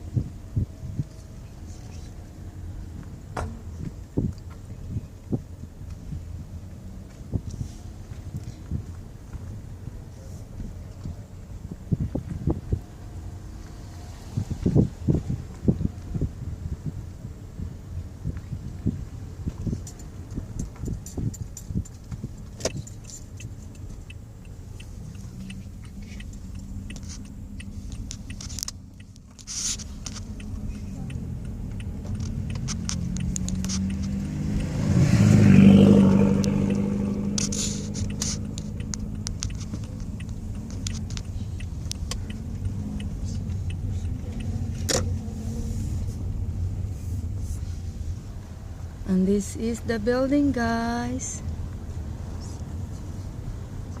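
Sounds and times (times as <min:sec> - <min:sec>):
car engine running: 0:00.0 - 0:54.0
vehicle passing: 0:22.8 - 0:54.0.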